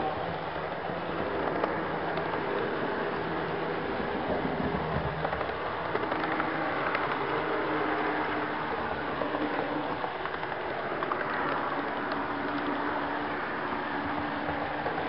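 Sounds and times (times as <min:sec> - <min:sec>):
model train wheels rolling on rail: 0:00.0 - 0:15.0
small clicks: 0:05.2 - 0:07.6, 0:09.2 - 0:12.9.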